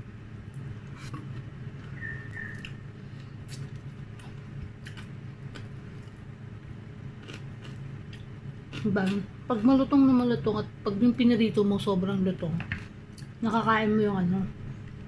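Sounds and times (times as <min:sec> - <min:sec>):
steady low hum: 0:00.0 - 0:15.0
chewing crispy food crunches: 0:01.0 - 0:06.3, 0:07.1 - 0:09.2.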